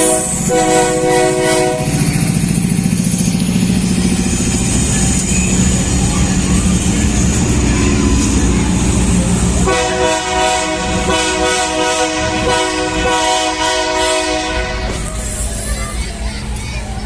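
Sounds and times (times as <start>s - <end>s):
locomotive air horn blast: 0.0s - 2.1s, 9.6s - 15.1s
diesel locomotive engine rumbling: 0.0s - 17.0s.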